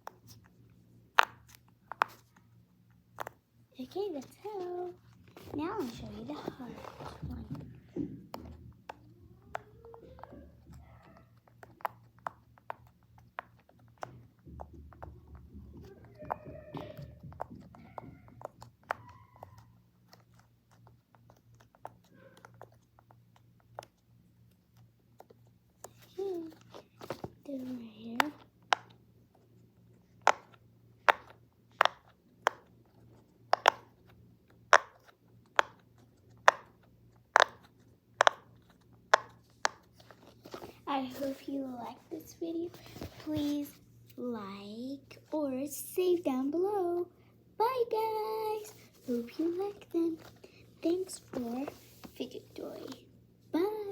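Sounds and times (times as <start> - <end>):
fidget toy pops and clicks: 36.4 - 38.5.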